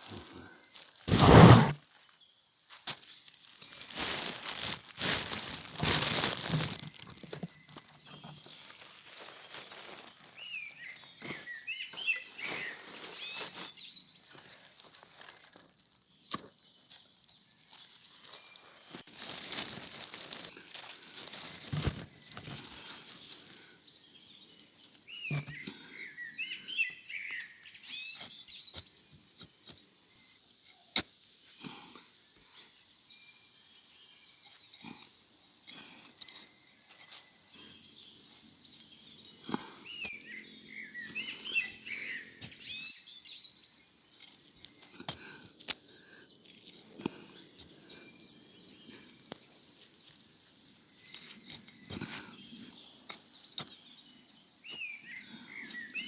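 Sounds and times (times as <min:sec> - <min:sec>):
birds chirping: 0:16.4 - 0:56.0.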